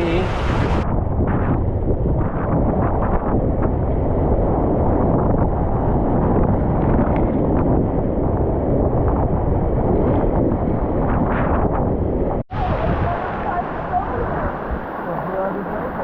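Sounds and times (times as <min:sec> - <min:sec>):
river water flowing: 0:00.0 - 0:00.8
wind buffeting microphone: 0:00.0 - 0:16.0.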